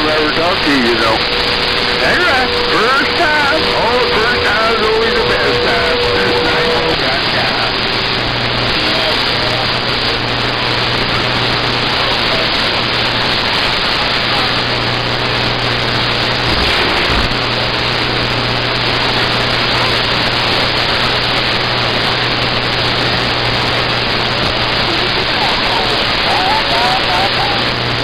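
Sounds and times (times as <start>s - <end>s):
low hum: 0.0s - 11.6s
radio static hiss: 0.0s - 28.0s.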